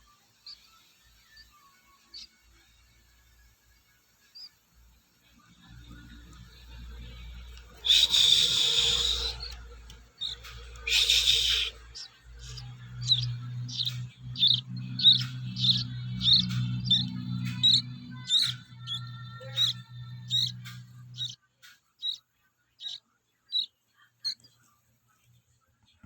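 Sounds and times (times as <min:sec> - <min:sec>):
baby songbird chirping: 0:00.4 - 0:03.3, 0:04.2 - 0:04.6, 0:05.6 - 0:22.2, 0:22.8 - 0:24.5
steady low hum: 0:05.9 - 0:21.4
baby songbird squawking: 0:06.2 - 0:21.4, 0:22.0 - 0:22.2, 0:22.8 - 0:24.4.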